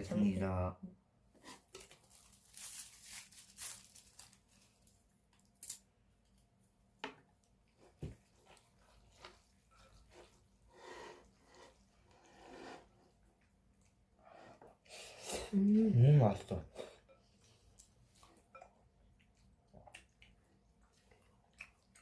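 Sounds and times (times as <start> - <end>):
wet chewing sounds: 17.3 - 22.0.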